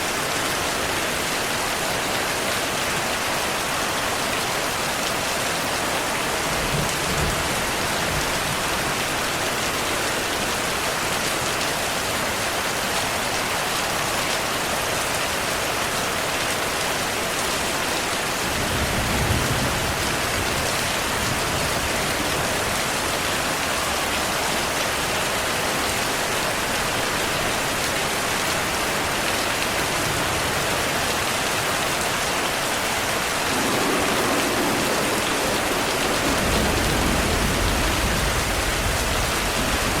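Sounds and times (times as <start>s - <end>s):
heavy rainfall: 0.0s - 40.0s
thunder rumbling: 33.2s - 40.0s.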